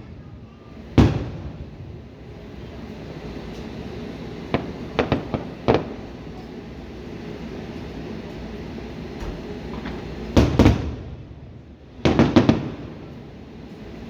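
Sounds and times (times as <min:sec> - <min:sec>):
fireworks bangs: 0:00.8 - 0:02.3, 0:04.4 - 0:06.1, 0:09.2 - 0:11.3, 0:12.0 - 0:13.2.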